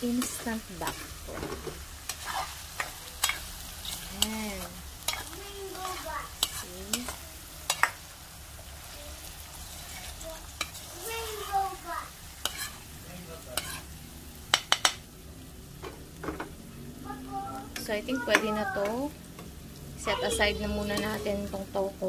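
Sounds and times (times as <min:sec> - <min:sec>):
tofu sizzling in a pan: 0:00.0 - 0:22.0
metal spoon scraping pan: 0:00.2 - 0:07.9, 0:09.6 - 0:11.0, 0:12.4 - 0:12.9, 0:13.5 - 0:13.9, 0:20.7 - 0:21.5.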